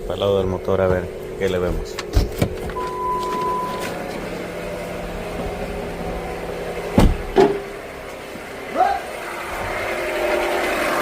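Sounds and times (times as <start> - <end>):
car engine idling: 0.0 - 11.0
steady beep: 2.8 - 4.0
loud thump: 6.9 - 7.6.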